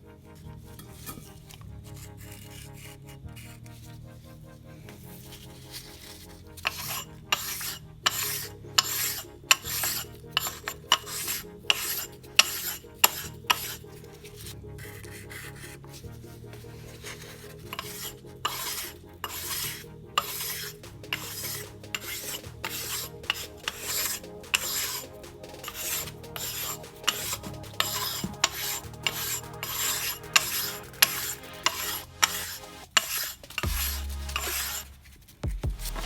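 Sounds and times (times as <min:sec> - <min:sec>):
rasping strokes on metal: 0:06.6 - 0:13.9, 0:17.0 - 0:35.0.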